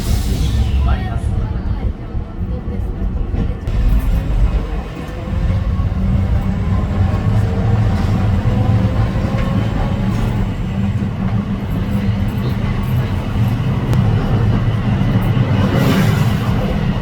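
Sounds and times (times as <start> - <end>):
streetcar wheels rumbling on rail: 0.0 - 17.0.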